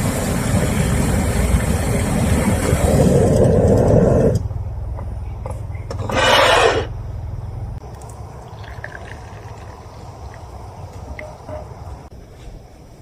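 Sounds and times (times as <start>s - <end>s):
rolling thunder rumble: 0.0s - 4.4s.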